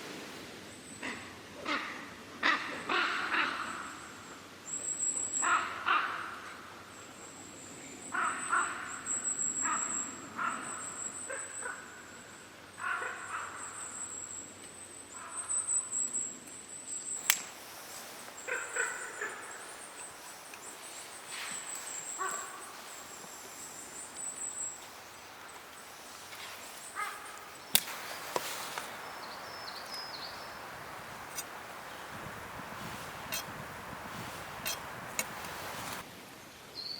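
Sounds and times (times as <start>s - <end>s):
crows cawing: 5.4s - 6.5s, 12.8s - 13.7s, 18.4s - 19.9s, 22.1s - 23.1s, 25.3s - 27.6s.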